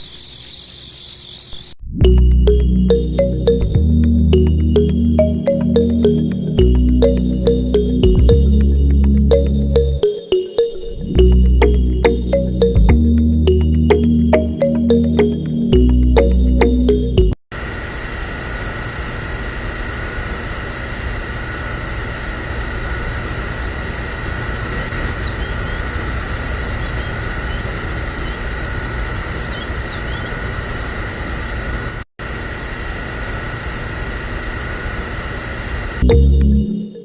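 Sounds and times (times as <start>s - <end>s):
small machine running with whine: 17.6s - 37.0s.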